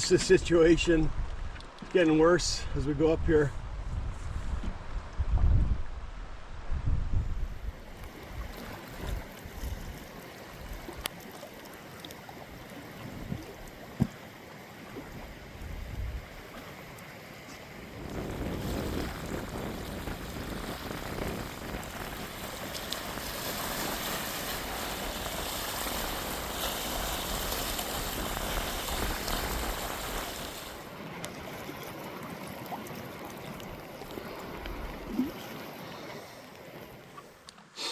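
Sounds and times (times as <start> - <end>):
rush of wind: 0.0 - 10.0, 15.1 - 16.5, 17.8 - 30.8
wind-driven waves: 0.0 - 11.3, 12.4 - 14.2, 14.8 - 37.1
wind buffeting microphone: 2.6 - 10.1, 15.0 - 16.4, 17.8 - 30.8.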